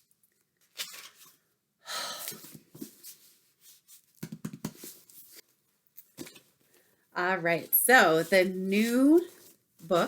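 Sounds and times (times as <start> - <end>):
paper and packaging rustling: 2.3 - 10.0.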